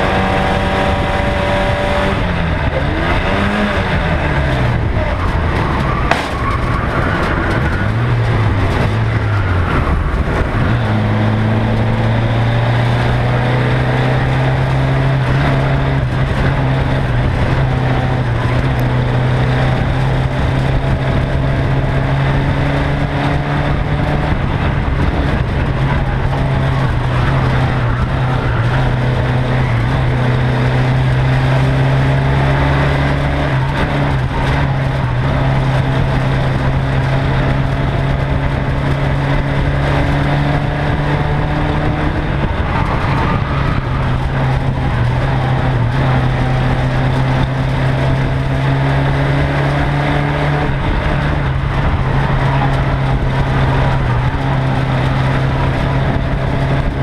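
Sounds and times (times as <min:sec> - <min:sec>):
race car engine running hard: 0:00.0 - 0:57.0
wind and road noise: 0:00.0 - 0:57.0.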